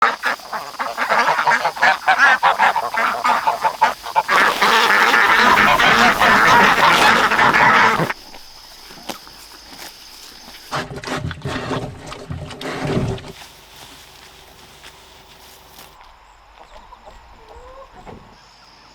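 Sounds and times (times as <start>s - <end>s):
geese and ducks honking and quacking: 0.0s - 9.0s.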